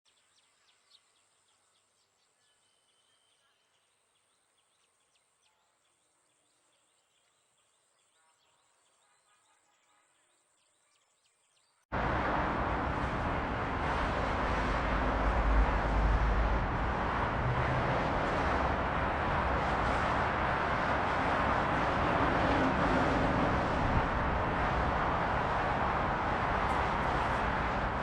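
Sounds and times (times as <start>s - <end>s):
loud rushing noise: 11.9s - 28.0s.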